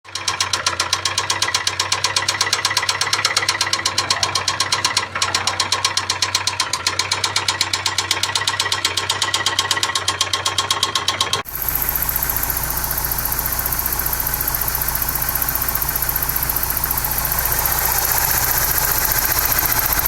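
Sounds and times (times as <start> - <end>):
metallic engine ticking: 11.4 - 20.0
car engine idling: 11.5 - 20.0.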